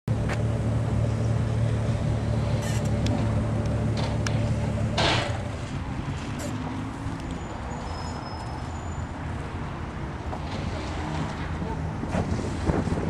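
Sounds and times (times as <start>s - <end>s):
car engine idling: 0.1s - 7.5s.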